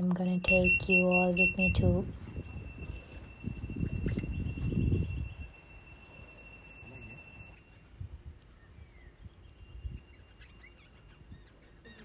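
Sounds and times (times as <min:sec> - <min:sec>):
thin steady high tone: 0:00.3 - 0:08.0
faint bird chirps: 0:00.5 - 0:08.0, 0:08.6 - 0:12.0.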